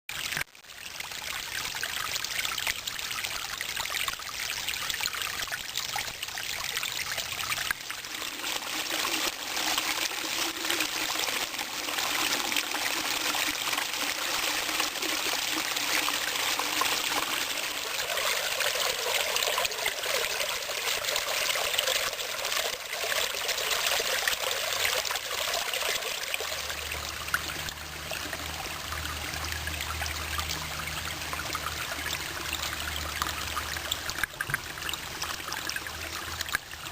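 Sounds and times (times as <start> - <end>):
brook babbling over stones: 0.1 - 36.9.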